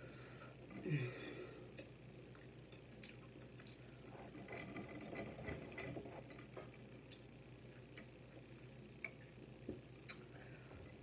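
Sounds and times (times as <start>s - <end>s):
chewing with wet clicks: 1.8s - 3.9s, 6.3s - 8.2s.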